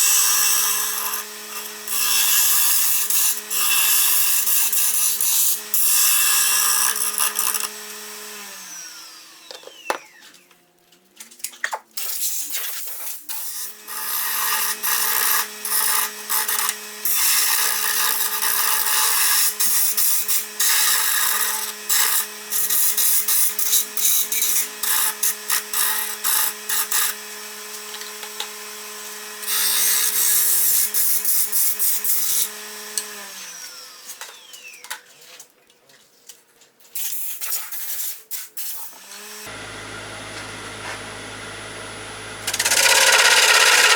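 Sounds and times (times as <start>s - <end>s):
wood lathe motor hum: 0.5s - 2.6s, 5.6s - 10.3s, 26.1s - 31.0s, 32.3s - 34.7s, 39.1s - 43.9s
hand tool rasping on wood: 42.5s - 43.9s.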